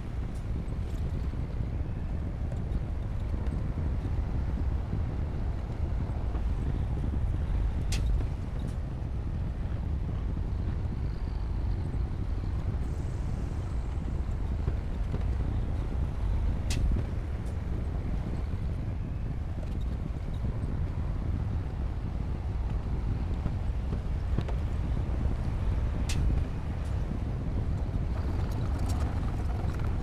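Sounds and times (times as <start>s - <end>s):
bulldozer diesel engine rumbling: 26.5s - 30.0s.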